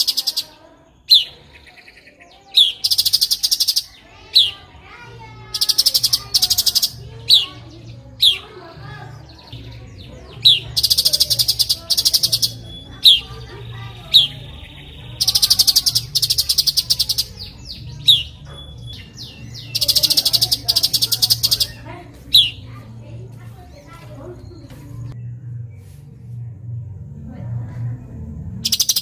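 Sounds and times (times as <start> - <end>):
bird rattling trills: 0.0 - 22.9, 28.6 - 29.0
faint low hum: 0.0 - 29.0.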